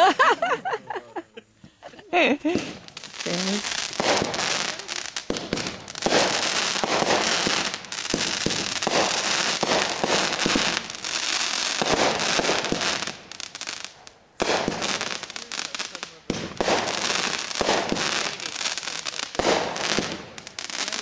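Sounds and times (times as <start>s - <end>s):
fireworks crackling: 0.0s - 21.0s
fireworks hissing: 1.6s - 21.0s.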